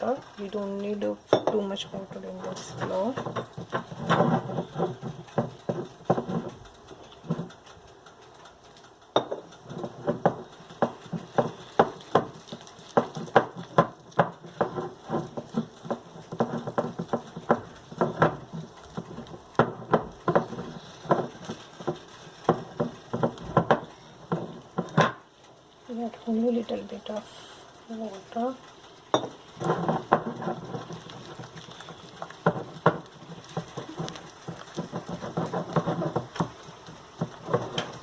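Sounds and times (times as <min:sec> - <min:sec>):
spoon tapping against a bowl: 0:09.2 - 0:09.4, 0:29.1 - 0:29.4
wet sticky batter sounds: 0:25.8 - 0:38.0.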